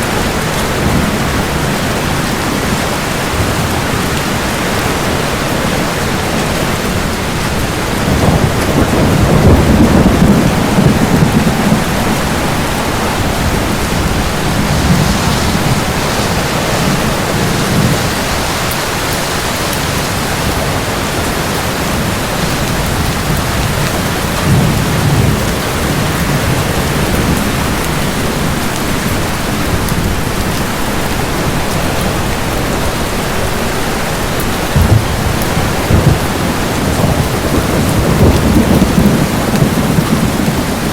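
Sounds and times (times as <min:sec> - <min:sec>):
heavy rain: 0:00.0 - 0:40.9
rolling thunder: 0:00.0 - 0:40.9
sharp thunderclap: 0:06.8 - 0:21.1, 0:34.6 - 0:40.9.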